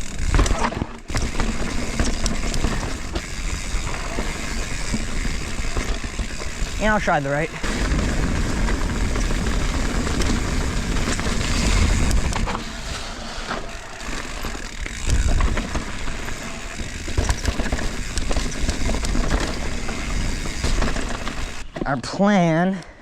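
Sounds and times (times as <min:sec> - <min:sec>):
bike tyre noise: 0:00.0 - 0:21.9
bike rattling over rocks: 0:00.0 - 0:22.0.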